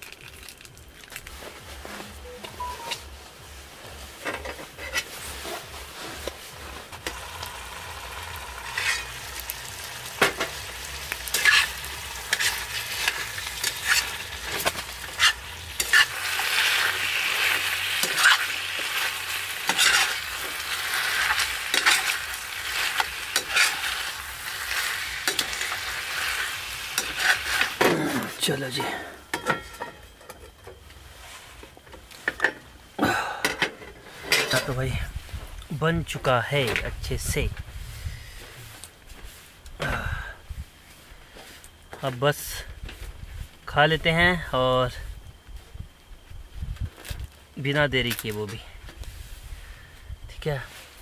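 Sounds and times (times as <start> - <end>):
metal spoon scraping a pan: 4.2 - 5.7, 8.5 - 9.5, 10.1 - 27.8
chicken sizzling in a frying pan: 7.0 - 28.8.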